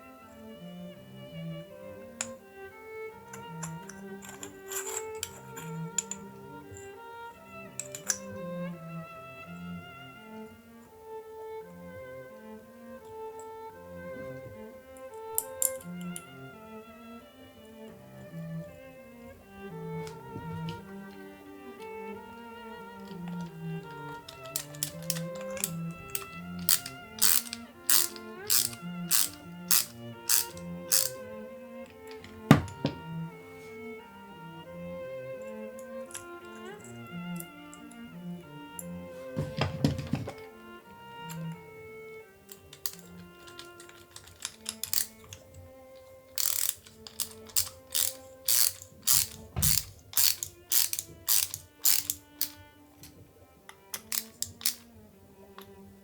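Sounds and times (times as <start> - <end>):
background music with violin: 0.0 - 56.0
mechanical ratcheting clicks: 3.3 - 6.9, 7.8 - 8.3, 15.0 - 16.2, 22.8 - 32.8, 42.5 - 52.6, 53.9 - 54.9.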